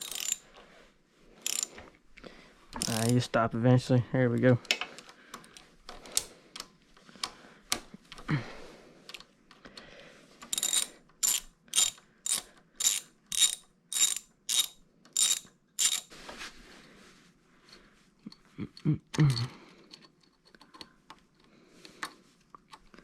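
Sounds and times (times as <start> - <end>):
ratchet wrench clicking: 0.0 - 0.4, 1.4 - 1.7, 2.8 - 3.2, 10.5 - 16.1.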